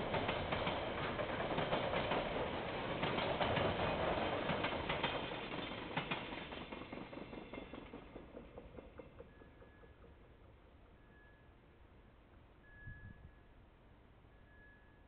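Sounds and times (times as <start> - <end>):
freight train wagons rattling: 0.0 - 11.0.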